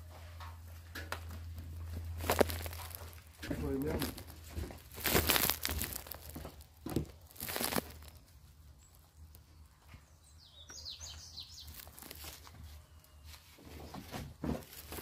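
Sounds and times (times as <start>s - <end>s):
faint rural ambience: 0.0s - 15.0s
rustle: 2.1s - 9.0s, 11.0s - 15.0s
bird chirps: 8.0s - 14.0s.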